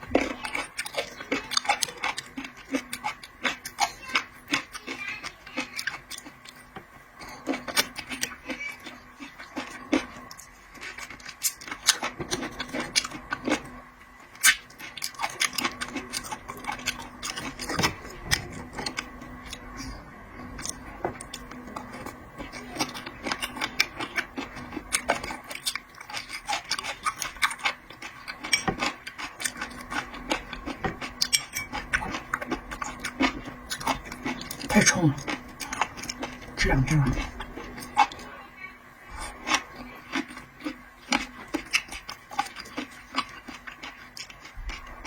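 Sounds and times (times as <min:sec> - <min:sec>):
faint steady hum: 0:00.0 - 0:45.0
shellfish shells clicking and cracking: 0:20.6 - 0:36.4, 0:39.5 - 0:44.9.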